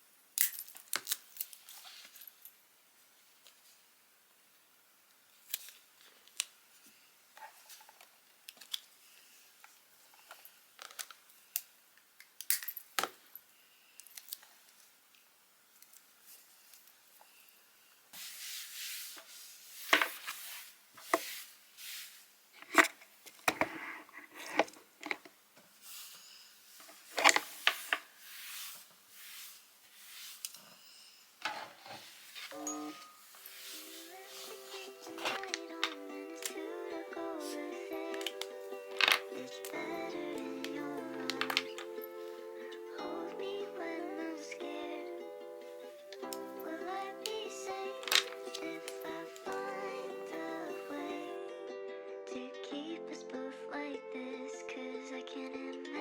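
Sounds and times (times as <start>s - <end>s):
rustling and scraping: 18.1s - 35.8s.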